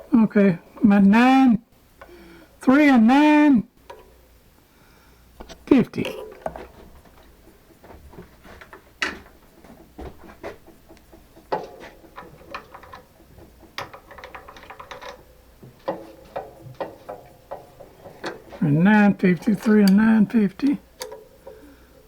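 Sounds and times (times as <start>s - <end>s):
metallic clicks and knocks: 5.4s - 22.0s.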